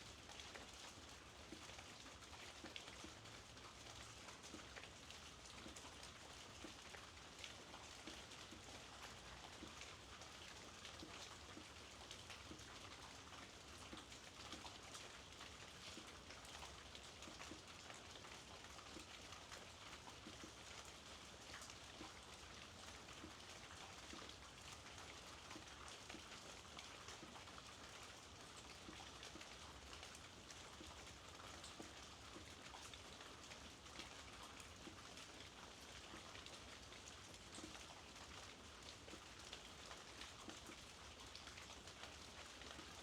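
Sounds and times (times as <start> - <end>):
raindrops ticking on surfaces: 0.0 - 43.0
soft rainfall: 0.0 - 43.0.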